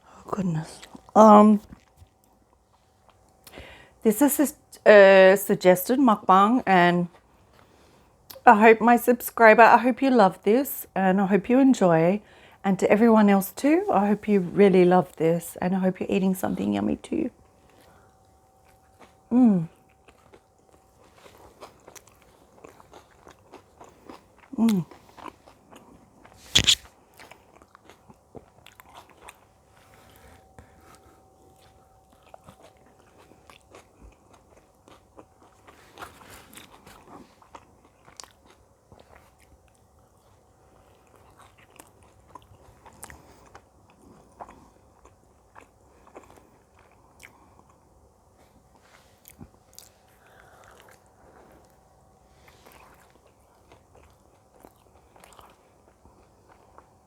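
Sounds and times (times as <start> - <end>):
biting and chewing pizza: 17.4 - 57.0
wet mouth clicks: 26.5 - 26.9.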